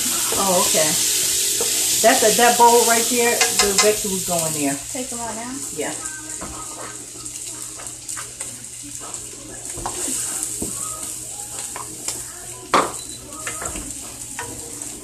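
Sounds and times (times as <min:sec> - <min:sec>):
corn sizzling in a skillet: 0:00.0 - 0:15.0.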